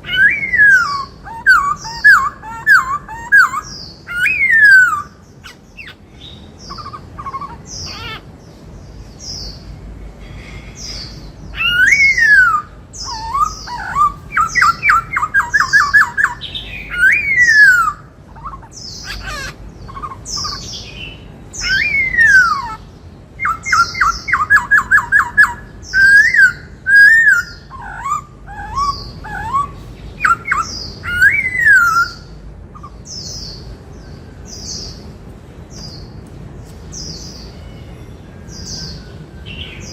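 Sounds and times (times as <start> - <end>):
bird singing whistled phrases: 0.0 - 8.2, 11.6 - 22.8, 23.4 - 33.0.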